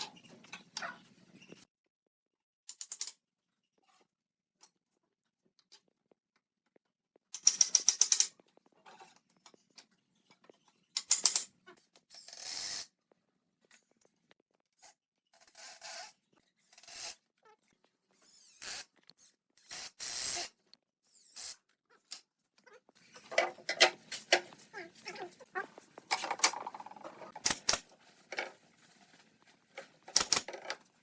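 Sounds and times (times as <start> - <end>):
hand tool clicking and scraping: 7.3 - 9.9, 10.9 - 11.5, 23.1 - 25.2, 26.0 - 28.6, 29.8 - 30.9.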